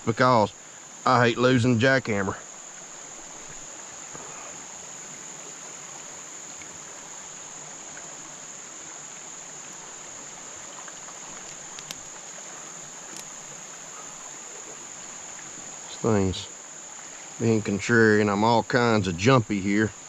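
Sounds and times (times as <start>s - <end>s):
crickets chirping: 0.0s - 20.0s
faint clicks: 10.8s - 13.5s.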